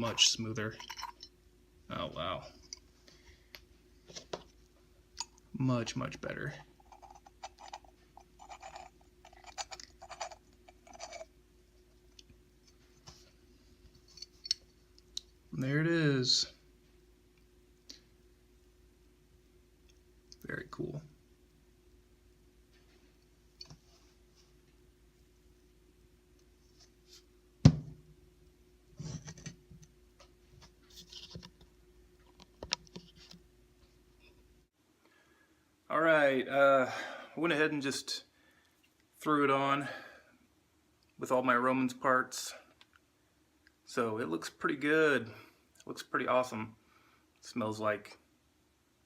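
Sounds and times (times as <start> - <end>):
rustling and scraping: 6.6 - 11.3, 28.9 - 29.6, 30.2 - 33.4
metal threads rasping: 6.8 - 11.3.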